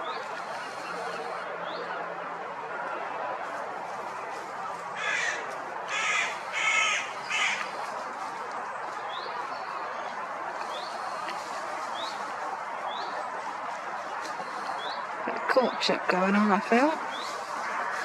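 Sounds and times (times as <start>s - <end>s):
crow cawing: 5.0s - 7.7s.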